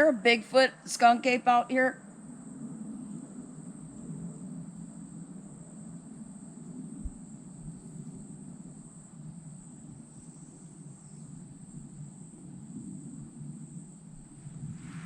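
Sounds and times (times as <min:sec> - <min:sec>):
insect trill: 0:00.0 - 0:15.0
low rushing hiss: 0:13.8 - 0:15.0.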